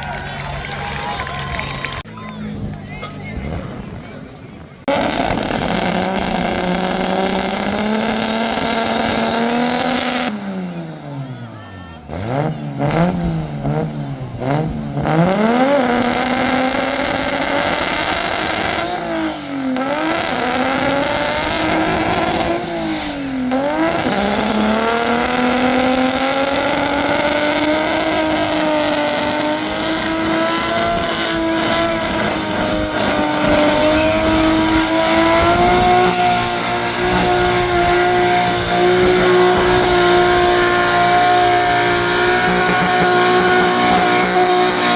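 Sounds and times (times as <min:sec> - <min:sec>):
car engine revving: 0:00.0 - 0:44.9
spinning tyres: 0:00.0 - 0:44.9.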